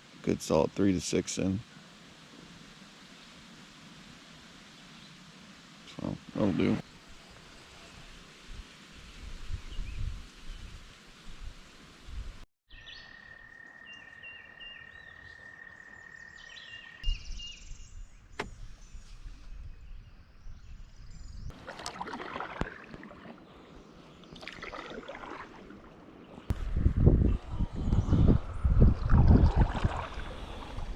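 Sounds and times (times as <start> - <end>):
birds singing: 12.7 - 21.5
water splashing: 21.5 - 26.5, 28.5 - 30.9.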